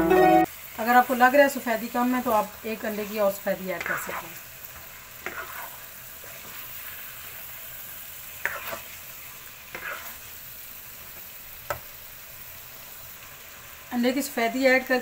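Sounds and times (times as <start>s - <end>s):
food sizzling in a frying pan: 0.0s - 15.0s
spatula scraping a pan: 2.9s - 7.6s, 8.3s - 10.3s.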